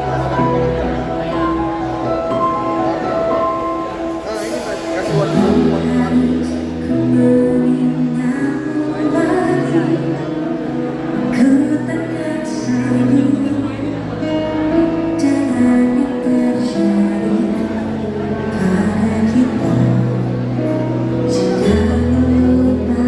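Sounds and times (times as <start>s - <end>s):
live pop band playing: 0.0s - 23.0s
person singing: 5.1s - 23.0s.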